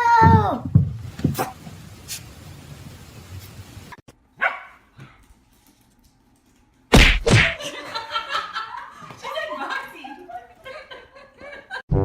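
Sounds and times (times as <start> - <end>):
dog barking: 4.4 - 5.2.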